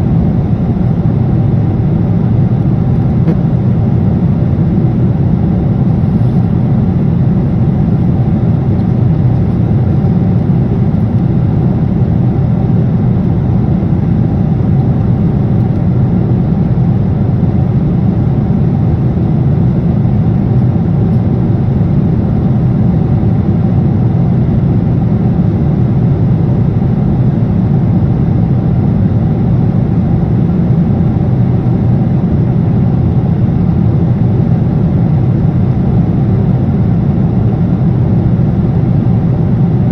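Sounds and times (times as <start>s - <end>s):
jet airliner cabin rumble: 0.0s - 39.9s.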